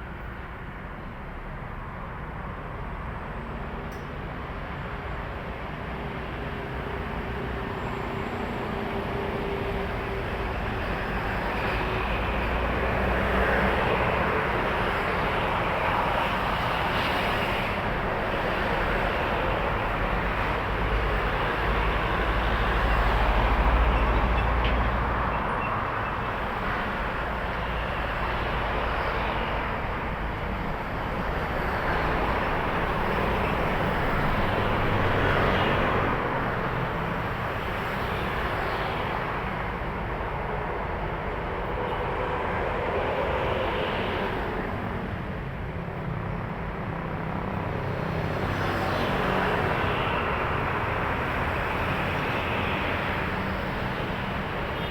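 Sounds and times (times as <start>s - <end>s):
trucks passing on highway: 0.0s - 54.9s.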